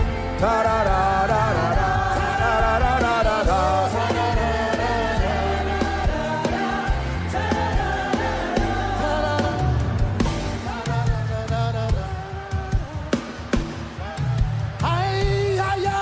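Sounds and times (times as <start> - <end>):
voices singing together: 0.0 - 12.8
band playing with bass and beat: 0.0 - 16.0.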